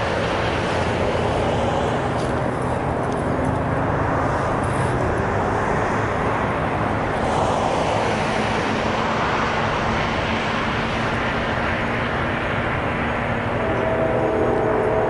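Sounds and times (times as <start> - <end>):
diesel locomotive rumble: 0.0 - 15.0.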